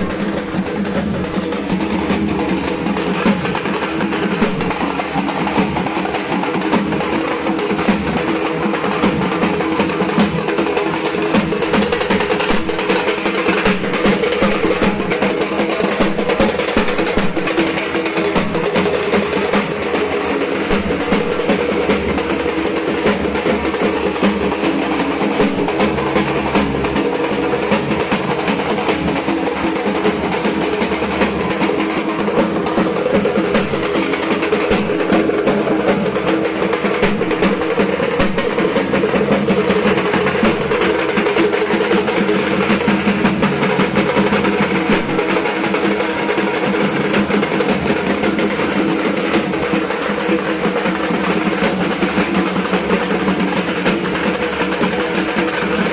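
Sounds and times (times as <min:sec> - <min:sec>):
barrel drum beaten with sticks: 0:00.0 - 0:55.9.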